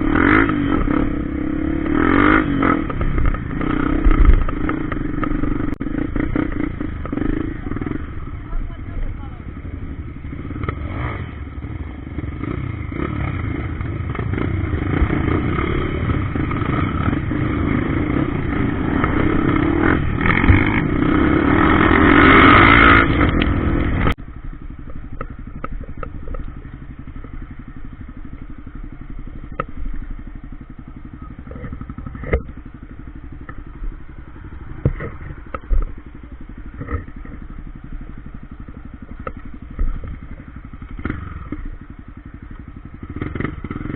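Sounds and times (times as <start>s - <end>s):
motorcycle engine running hard: 0.0s - 43.9s
sharp knocks and clatter: 34.7s - 36.0s.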